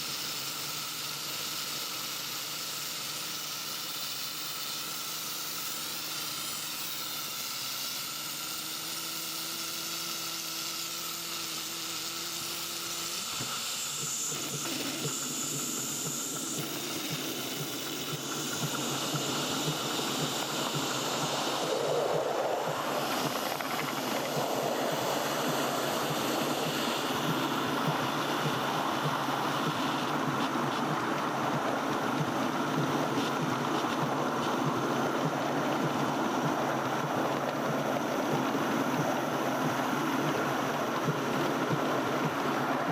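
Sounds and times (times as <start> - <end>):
steam locomotive hissing steam: 0.0 - 42.9
fast even rattle: 12.9 - 42.5.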